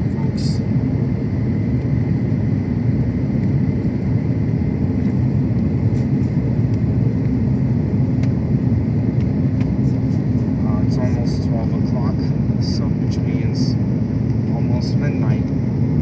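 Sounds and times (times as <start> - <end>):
airplane cabin engine roar: 0.0 - 16.0.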